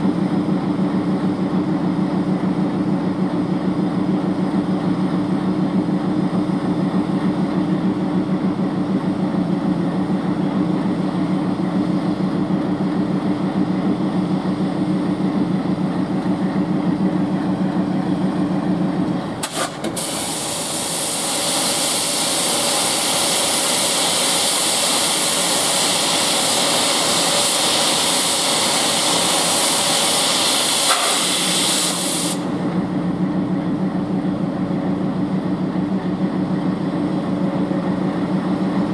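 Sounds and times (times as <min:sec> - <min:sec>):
diesel locomotive engine idling: 0:00.0 - 0:38.9
compressed air hissing: 0:19.4 - 0:32.6.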